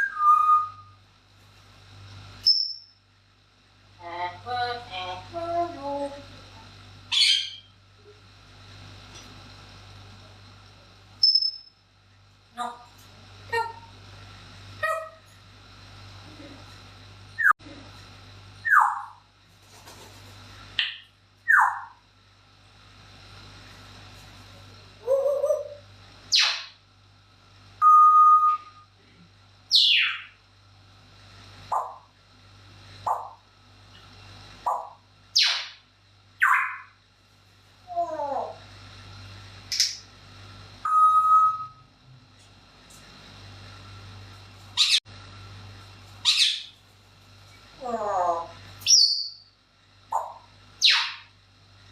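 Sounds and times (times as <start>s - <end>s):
parrot high whistle: 0.0s - 0.9s, 27.8s - 28.8s, 40.8s - 41.8s, 50.8s - 51.2s
parrot whistling and calling: 0.0s - 0.9s, 7.1s - 7.7s, 18.6s - 19.2s, 20.8s - 22.0s, 25.0s - 26.7s, 27.8s - 28.8s, 29.7s - 30.3s, 34.7s - 35.8s, 36.4s - 36.9s, 40.8s - 41.8s, 46.2s - 46.7s, 48.8s - 49.5s, 50.2s - 51.3s.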